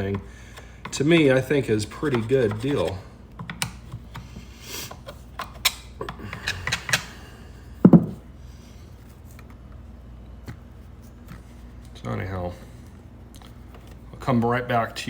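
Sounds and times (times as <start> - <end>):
clicks and rubbing of handling: 0.0 - 7.1
heavy thump: 7.8 - 8.2.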